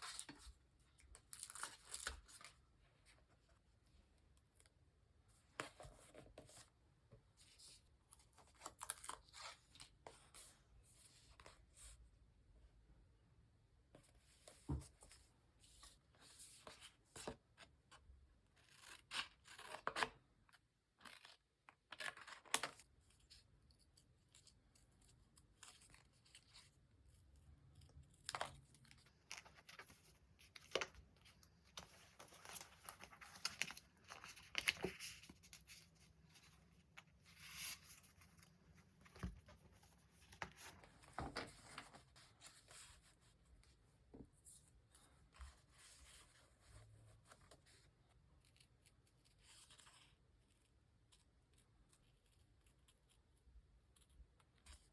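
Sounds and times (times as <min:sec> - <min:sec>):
paper crinkling: 0:28.0 - 0:43.1.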